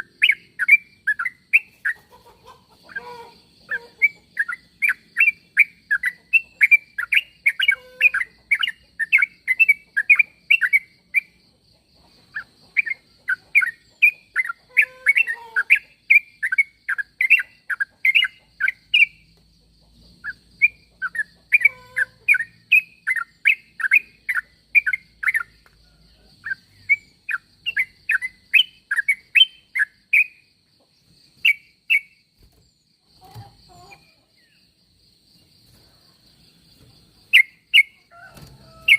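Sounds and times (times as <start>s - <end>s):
bulbul chattering calls: 0.0s - 11.3s, 12.4s - 19.2s, 20.2s - 25.6s.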